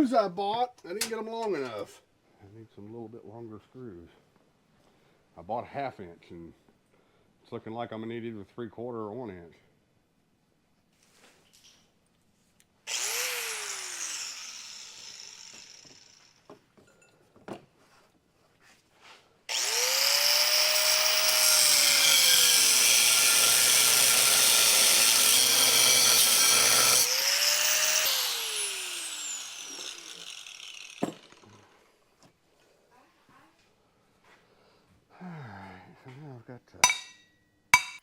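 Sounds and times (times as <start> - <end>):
electric tool cutting metal: 12.9 - 16.5, 19.5 - 31.7.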